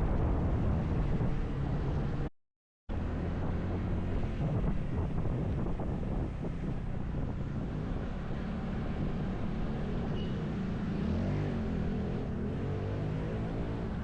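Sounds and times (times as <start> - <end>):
wind buffeting microphone: 0.0 - 2.3, 2.9 - 10.9
motorcycle engine at speed: 2.9 - 14.0.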